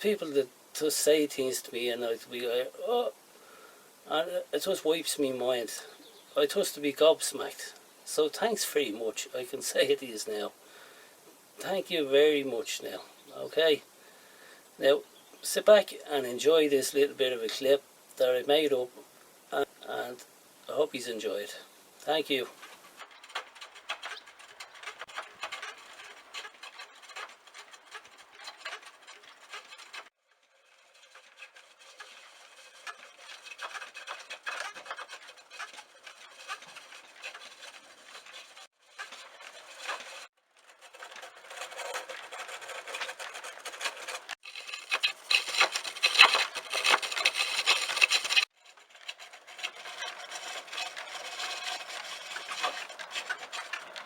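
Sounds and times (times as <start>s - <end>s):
lathe tool scraping spinning wood: 22.2s - 54.0s.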